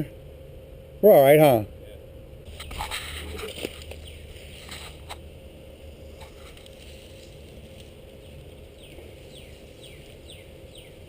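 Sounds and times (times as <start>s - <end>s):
low steady rumble: 0.0s - 11.0s
bird chirping: 3.7s - 4.7s, 8.2s - 11.0s.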